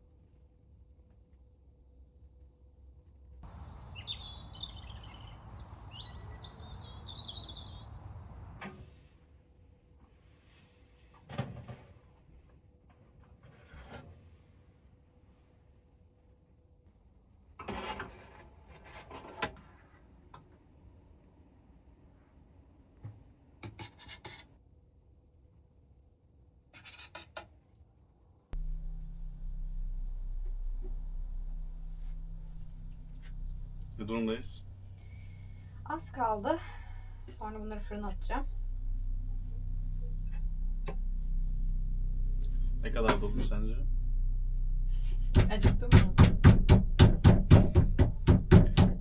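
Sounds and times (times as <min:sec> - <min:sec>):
low outdoor background noise: 0:00.0 - 0:13.6, 0:27.5 - 0:45.4
small birds chirping and singing: 0:03.4 - 0:08.0
rubbing and scraping of food preparation: 0:13.0 - 0:14.6, 0:17.6 - 0:20.1, 0:23.7 - 0:24.6
loud steady low hum: 0:28.6 - 0:49.0.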